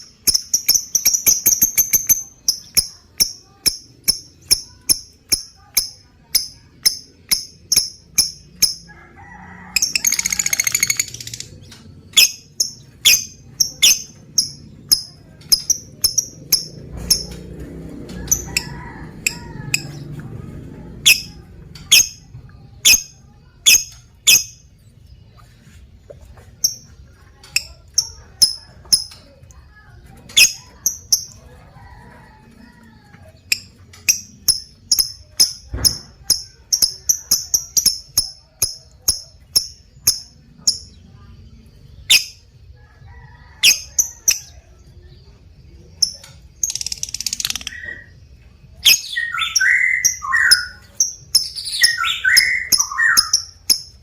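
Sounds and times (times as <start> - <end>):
lovebird chirping: 0.0 - 8.9, 9.8 - 17.4, 21.0 - 24.7, 30.3 - 31.4, 33.5 - 41.3, 41.9 - 42.5, 46.0 - 54.0
harsh low chattering calls: 9.7 - 22.2.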